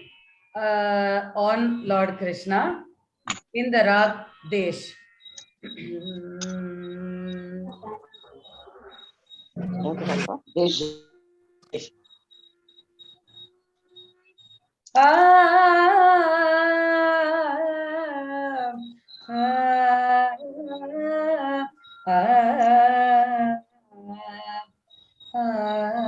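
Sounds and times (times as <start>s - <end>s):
woman singing wordless held notes: 5.8s - 8.1s, 15.0s - 24.7s, 25.4s - 26.0s.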